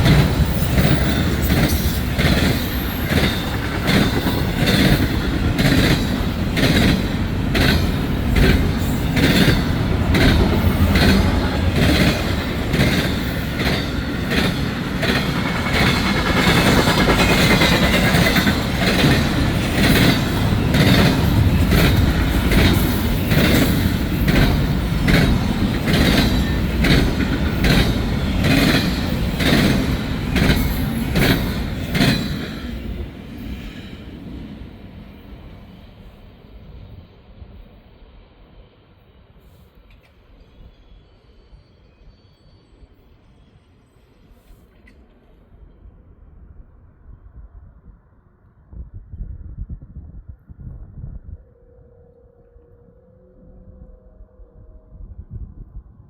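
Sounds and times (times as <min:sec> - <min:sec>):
train wheels clicking over rail joints: 0:00.0 - 0:34.4.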